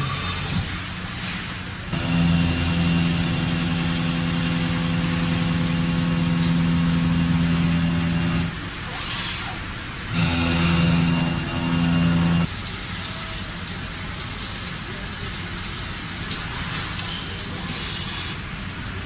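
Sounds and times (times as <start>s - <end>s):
machine motor humming: 1.9s - 8.6s, 10.1s - 12.5s.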